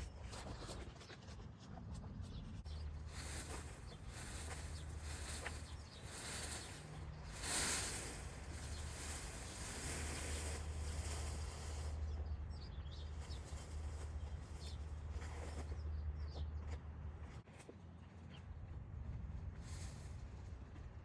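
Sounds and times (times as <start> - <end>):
wind rumbling on microphone: 0.0 - 16.6, 18.3 - 21.0
small birds chirping: 0.0 - 16.8
rustling hiss: 3.0 - 12.0.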